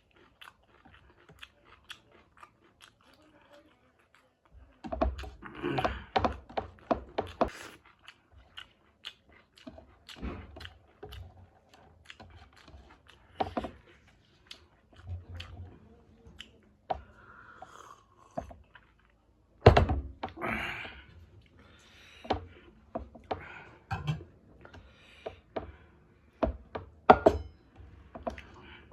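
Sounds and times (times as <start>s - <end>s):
person chewing food: 0.0s - 28.9s.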